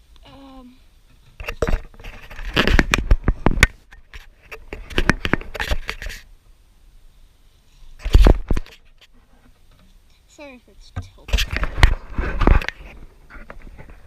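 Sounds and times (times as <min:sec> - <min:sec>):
handling clicks knocks and scrapes: 0:01.1 - 0:06.2, 0:08.0 - 0:10.0, 0:11.0 - 0:14.0.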